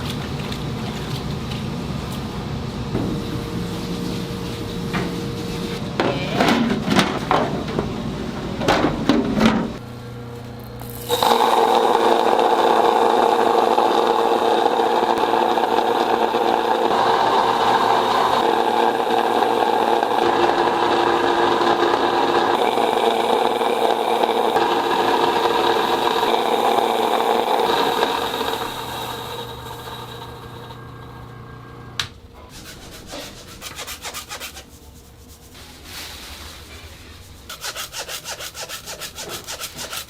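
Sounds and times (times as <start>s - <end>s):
small motor humming: 10.6s - 31.9s.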